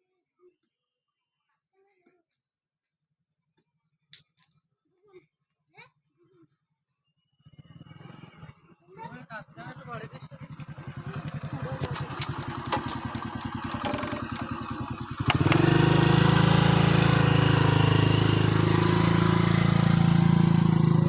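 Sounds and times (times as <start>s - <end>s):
small engine puttering: 7.3s - 21.0s.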